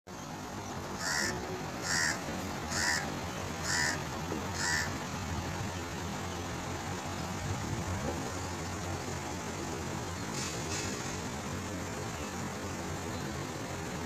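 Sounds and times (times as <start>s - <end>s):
bird calls: 0.1s - 6.5s.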